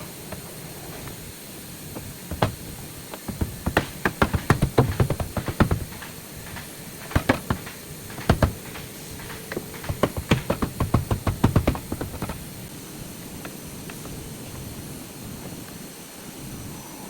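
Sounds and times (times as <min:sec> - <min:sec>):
quick knocks and taps: 0:02.0 - 0:12.6.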